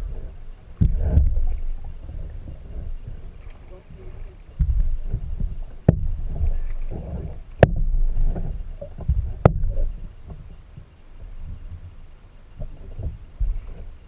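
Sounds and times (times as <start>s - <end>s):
kayak paddling on water: 0.0s - 14.0s
sharp knocks: 4.6s - 6.6s, 7.6s - 10.4s.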